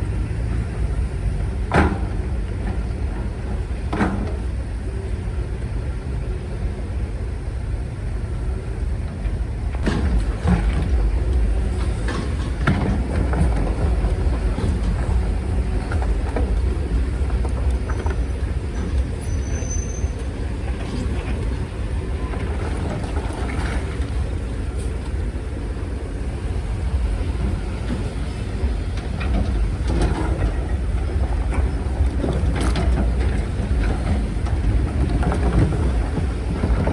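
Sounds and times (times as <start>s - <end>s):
diesel machinery rumbling: 0.0s - 36.9s
metal knocks and clanks: 9.8s - 25.0s.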